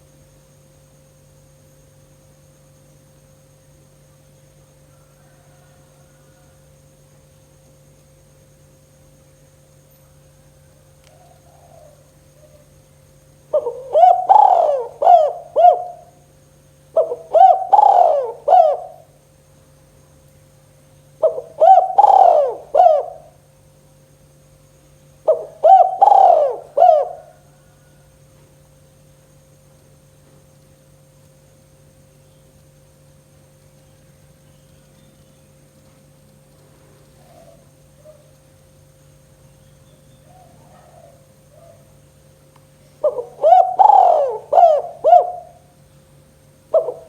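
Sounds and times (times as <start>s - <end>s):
faint steady hum: 0.0s - 47.0s
dove cooing: 10.6s - 12.8s, 13.5s - 16.3s, 16.9s - 19.2s, 21.2s - 23.4s, 25.2s - 28.1s, 37.0s - 38.4s, 40.1s - 42.0s, 42.9s - 45.8s, 46.7s - 47.0s.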